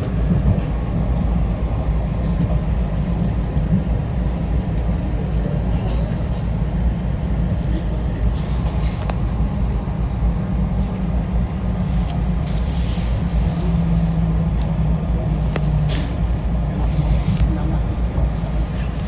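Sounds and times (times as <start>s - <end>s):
moving vehicle rumbling: 0.0s - 19.0s.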